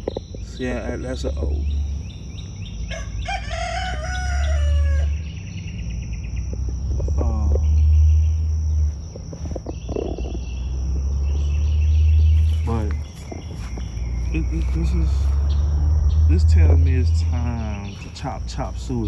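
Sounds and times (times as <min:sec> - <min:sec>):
crickets chirring: 0:00.0 - 0:19.0
rooster crowing: 0:02.8 - 0:05.4.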